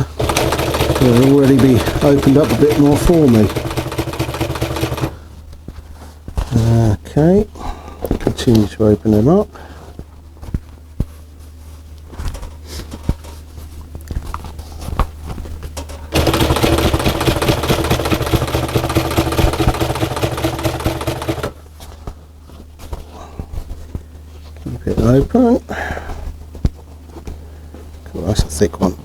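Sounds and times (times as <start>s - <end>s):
sewing machine stitching leather: 0.0s - 5.2s, 15.9s - 21.6s.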